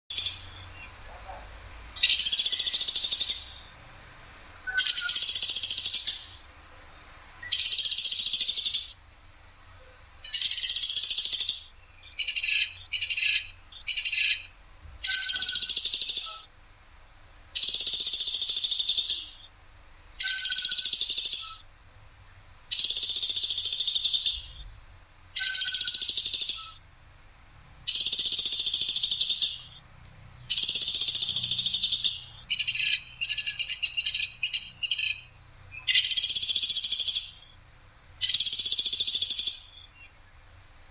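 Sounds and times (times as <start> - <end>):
bird rattling calls: 0.1 - 3.8, 4.6 - 6.5, 7.5 - 9.0, 10.3 - 16.5, 25.4 - 26.8, 27.9 - 29.8, 30.5 - 37.6, 38.2 - 40.0.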